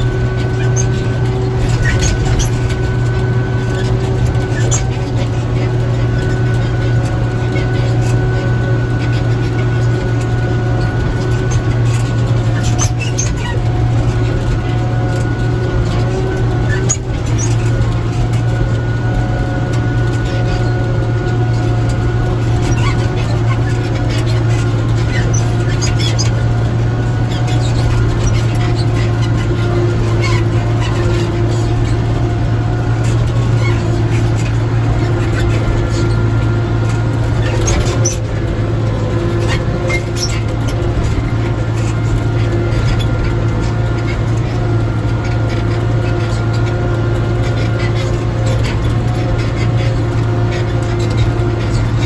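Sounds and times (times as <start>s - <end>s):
light rattles and clicks: 0.0s - 52.0s
tractor engine running: 0.0s - 52.0s.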